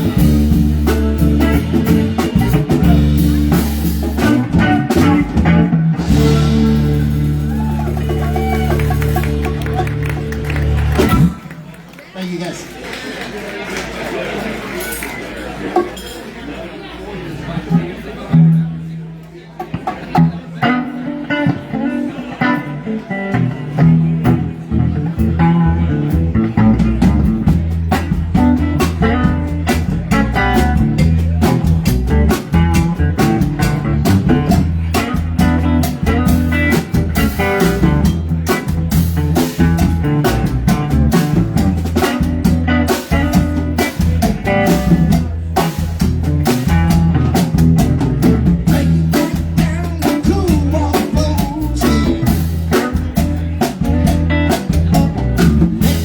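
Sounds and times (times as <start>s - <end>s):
drum kit: 0.0s - 11.6s, 19.6s - 56.0s
electric guitar: 0.0s - 11.6s, 19.8s - 56.0s
bass guitar: 0.0s - 11.8s, 17.6s - 56.0s.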